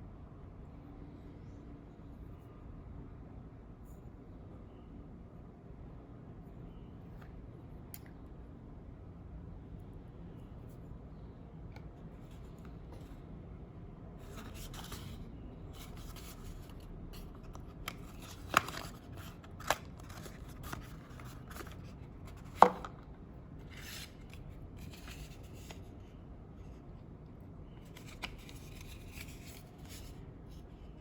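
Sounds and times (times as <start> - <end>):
packaging rustling and scraping: 14.2 - 22.9.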